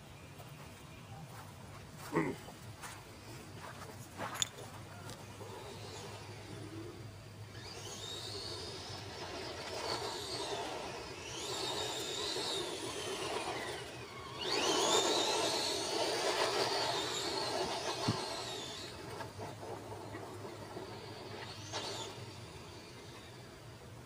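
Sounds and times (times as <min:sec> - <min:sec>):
rc truck motor whining: 0:05.0 - 0:24.0.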